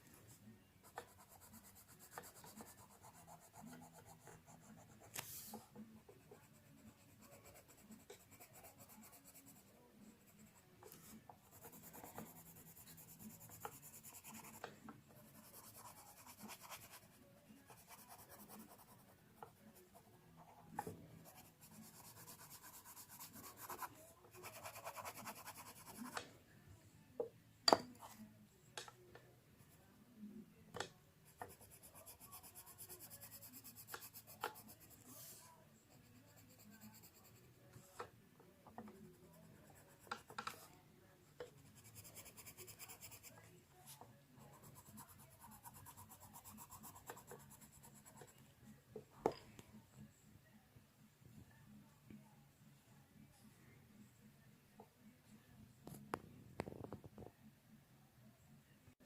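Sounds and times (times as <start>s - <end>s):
pencil scratching on paper: 0.2s - 26.3s, 31.2s - 38.1s, 38.8s - 40.8s, 41.4s - 48.4s.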